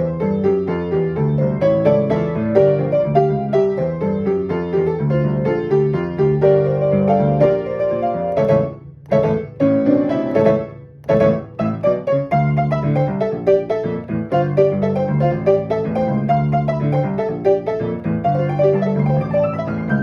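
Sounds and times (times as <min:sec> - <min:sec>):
fast rhythmic piano piece: 0:00.0 - 0:20.0.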